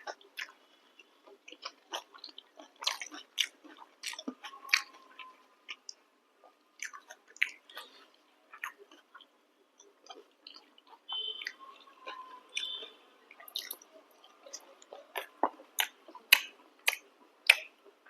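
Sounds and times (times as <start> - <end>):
person chewing: 0.0 - 6.0, 6.8 - 17.7.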